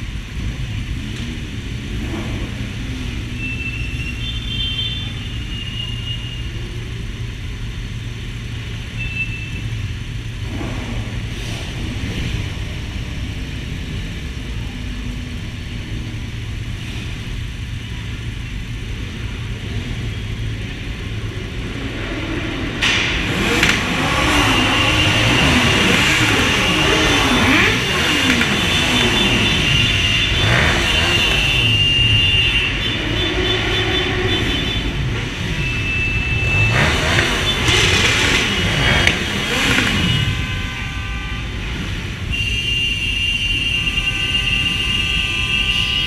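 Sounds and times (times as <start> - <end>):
motorcycles rumbling: 0.0 - 42.4
motorcycle engines revving: 0.0 - 42.6.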